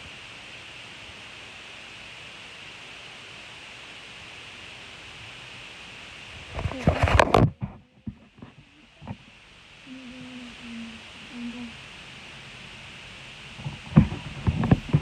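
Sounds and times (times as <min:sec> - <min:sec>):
steady background hiss: 0:00.0 - 0:15.0
loud rustling: 0:13.5 - 0:15.0.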